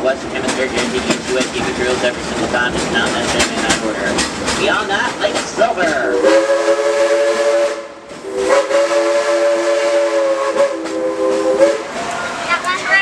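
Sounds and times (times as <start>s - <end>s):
steam locomotive chime whistle: 6.1s - 12.0s.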